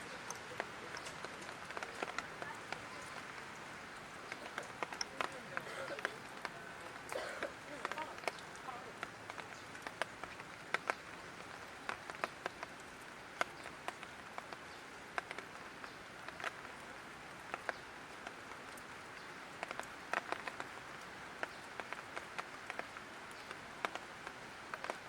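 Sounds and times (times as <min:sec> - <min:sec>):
light rain hiss: 0:00.0 - 0:25.0.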